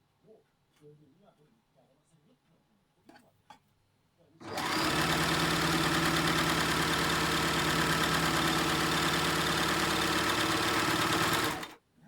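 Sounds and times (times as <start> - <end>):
sewing machine running: 4.4 - 11.8.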